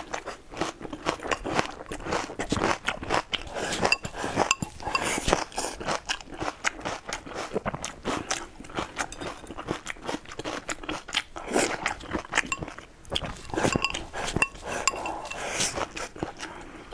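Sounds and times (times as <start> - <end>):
person chewing and crunching food: 0.0 - 16.9
chopsticks clicking on bowl: 3.8 - 5.1, 13.5 - 15.4.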